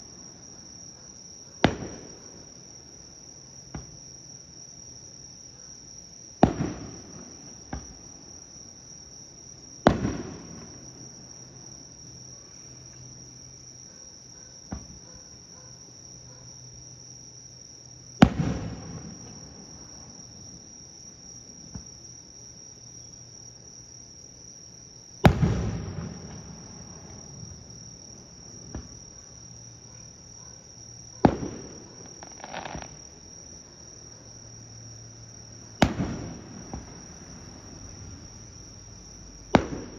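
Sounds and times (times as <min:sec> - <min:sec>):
insects chirring: 0:00.0 - 0:39.9
faint firework pops: 0:01.6 - 0:02.3, 0:03.7 - 0:04.0, 0:06.4 - 0:08.1, 0:09.8 - 0:10.9, 0:14.7 - 0:15.0, 0:18.2 - 0:19.8, 0:21.6 - 0:22.0, 0:25.2 - 0:27.3, 0:28.6 - 0:29.1, 0:31.2 - 0:33.1, 0:35.8 - 0:37.2, 0:39.5 - 0:39.9
firework shells booming: 0:01.6 - 0:02.5, 0:06.4 - 0:08.2, 0:09.8 - 0:11.0, 0:18.2 - 0:20.3, 0:25.2 - 0:29.1, 0:31.2 - 0:33.2, 0:35.8 - 0:38.7, 0:39.3 - 0:39.9.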